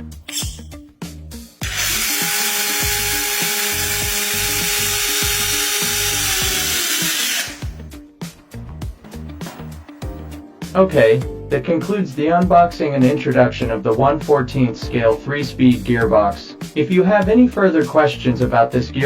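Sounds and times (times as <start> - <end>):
background music with steady beat: 0.0 - 19.0
toy truck motor whine: 1.6 - 7.8.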